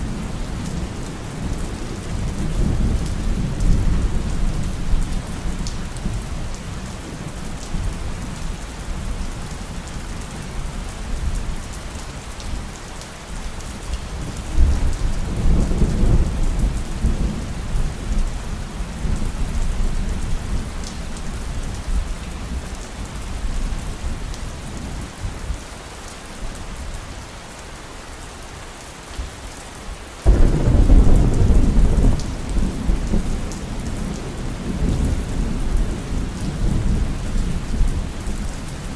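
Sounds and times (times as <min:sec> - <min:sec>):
heavy rain falling: 0:00.0 - 0:38.9
low rumbling thunder: 0:14.3 - 0:20.9, 0:30.3 - 0:38.9
loud thunderclap: 0:30.3 - 0:35.6.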